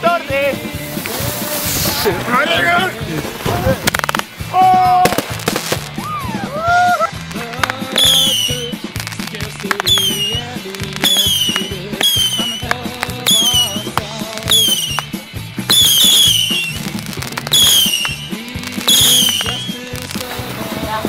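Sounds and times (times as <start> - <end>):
fireworks pops: 0.7 - 21.0
falling firework whistle: 7.9 - 8.8, 9.7 - 20.1.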